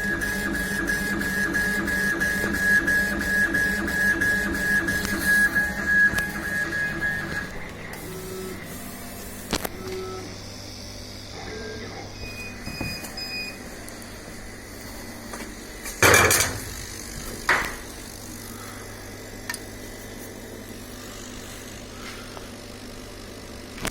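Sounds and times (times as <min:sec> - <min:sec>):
laser cutter humming: 0:00.0 - 0:23.9
short beeps: 0:11.5 - 0:13.6.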